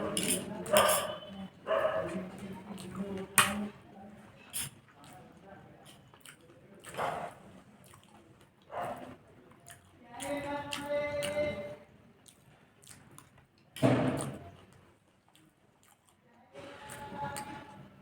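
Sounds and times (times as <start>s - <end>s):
wet chewing and slurping: 4.4s - 11.6s, 12.2s - 17.9s.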